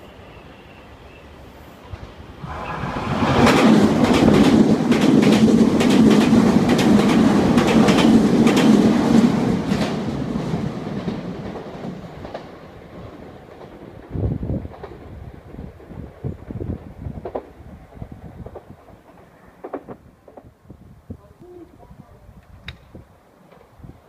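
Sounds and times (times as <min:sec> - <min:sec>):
train wheels clattering: 0:01.9 - 0:15.2, 0:17.2 - 0:20.5.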